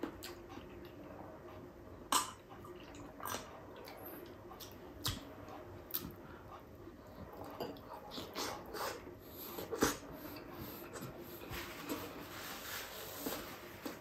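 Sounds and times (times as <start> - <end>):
person chewing and lip-smacking: 2.1 - 5.3, 5.9 - 6.2.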